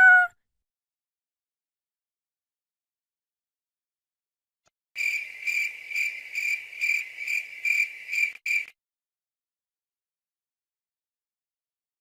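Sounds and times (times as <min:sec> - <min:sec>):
cricket chirping: 0:05.0 - 0:08.7.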